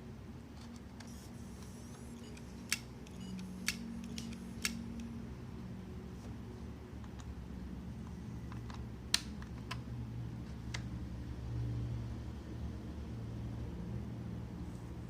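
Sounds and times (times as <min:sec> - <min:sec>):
hard disk humming: 0:00.0 - 0:05.6.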